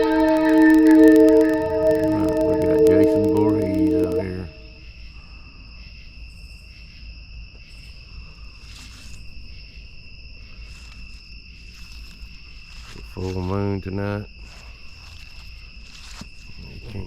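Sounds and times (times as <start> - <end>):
music: 0.0 - 4.7
night insects trilling: 0.0 - 4.7, 5.6 - 17.0.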